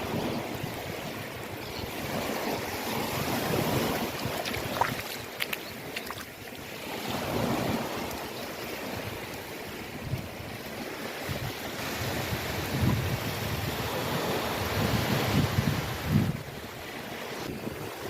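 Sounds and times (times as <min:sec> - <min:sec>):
ocean waves washing: 0:00.0 - 0:18.0
short sharp splashes: 0:04.1 - 0:06.4.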